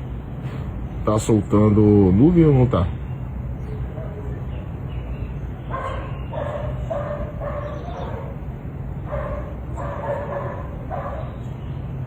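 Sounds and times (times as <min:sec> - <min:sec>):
dog barking: 0:03.6 - 0:04.5, 0:05.7 - 0:08.4, 0:09.0 - 0:11.5.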